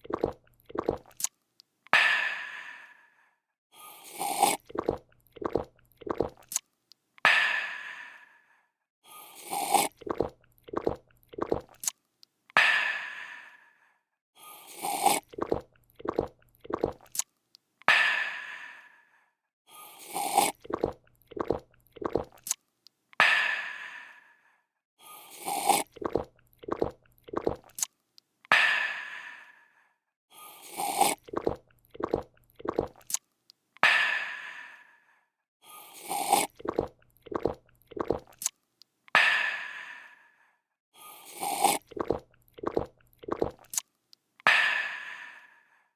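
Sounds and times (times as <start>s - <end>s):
gulping and swallowing: 0.0s - 1.3s, 4.2s - 6.6s, 9.5s - 11.9s, 14.8s - 17.2s, 20.1s - 22.6s, 25.4s - 27.9s, 30.8s - 33.2s, 36.1s - 38.5s, 41.4s - 43.8s.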